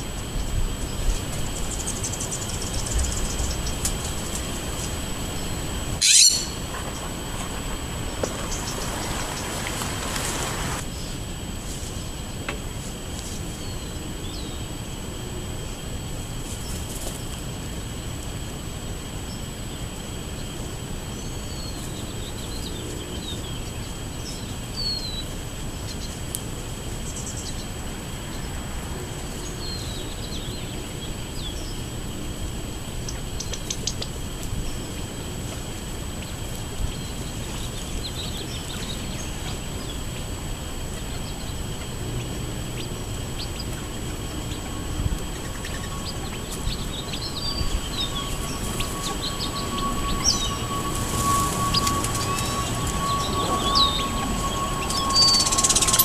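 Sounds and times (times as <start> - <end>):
steady background hiss: 0.0 - 56.0
small birds chirping: 0.3 - 11.2, 19.3 - 26.2, 29.3 - 31.9, 33.0 - 35.2, 36.1 - 56.0.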